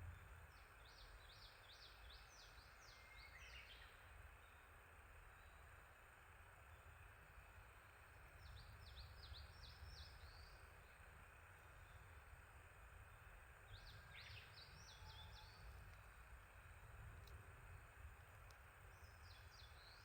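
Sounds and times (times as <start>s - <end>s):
small songbird singing: 0.0s - 4.7s, 8.3s - 12.2s, 13.0s - 16.2s, 18.5s - 20.0s
low background rumble: 0.0s - 20.0s.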